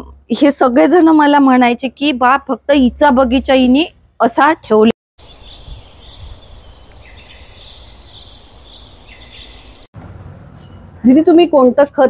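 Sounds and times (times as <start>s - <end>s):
birds singing: 5.2s - 9.9s, 10.5s - 11.3s
high bird chirps: 5.2s - 9.9s.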